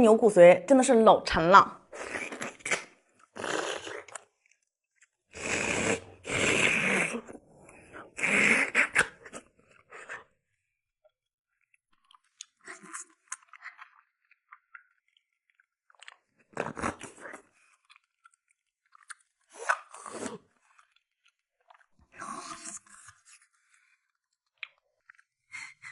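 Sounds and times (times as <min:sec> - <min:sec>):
biting and chewing: 0:11.6 - 0:25.8.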